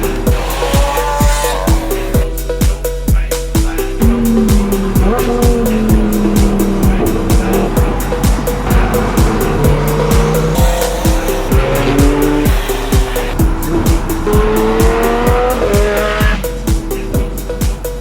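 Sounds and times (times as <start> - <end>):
sports car engines accelerating: 0.0 - 2.4, 3.5 - 18.0
music with steady beat: 0.0 - 18.0
tyre noise: 3.6 - 18.0.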